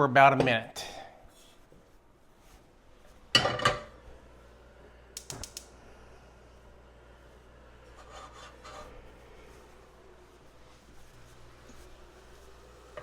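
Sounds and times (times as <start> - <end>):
metal pot clattering on stovetop: 3.4 - 3.9
sharp clicks: 5.2 - 5.7
utensil scraping in pot: 7.8 - 9.2.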